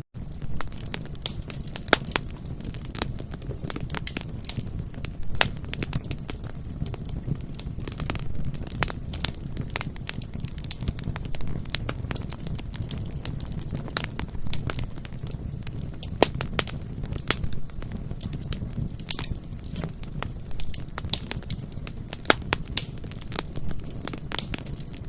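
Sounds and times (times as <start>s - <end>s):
bonfire rumbling: 0.2s - 25.0s
burning wood crackling and popping: 0.2s - 25.0s.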